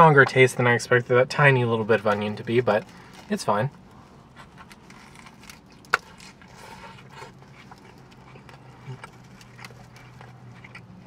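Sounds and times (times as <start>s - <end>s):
person chewing a sandwich: 2.6s - 11.0s.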